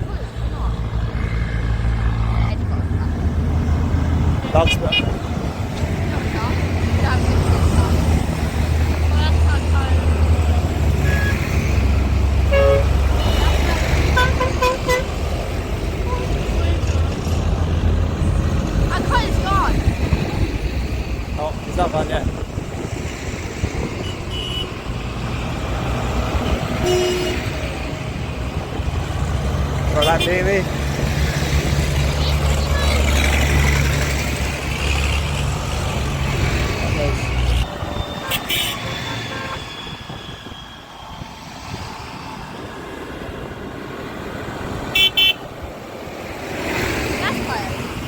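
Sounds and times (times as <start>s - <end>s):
tractor engines rumbling: 0.0s - 48.0s
short horn beeps: 11.0s - 11.4s, 12.5s - 13.6s, 26.8s - 27.6s, 38.2s - 39.6s
horn toot: 11.0s - 11.8s, 12.4s - 15.2s, 24.0s - 24.8s, 26.4s - 27.8s, 38.2s - 39.7s, 44.9s - 45.4s.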